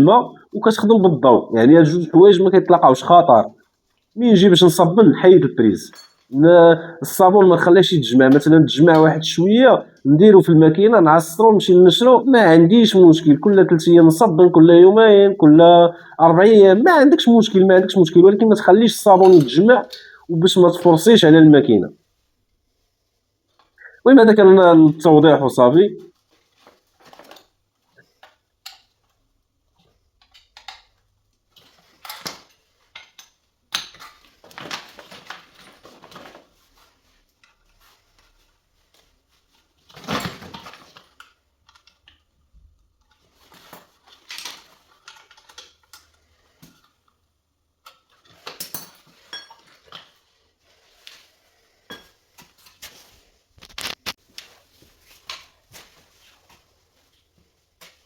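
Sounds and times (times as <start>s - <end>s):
tools and parts clicking and tapping: 5.9s - 6.4s, 19.2s - 20.1s, 27.0s - 36.4s, 37.4s - 37.7s, 40.0s - 50.2s, 51.8s - 52.9s.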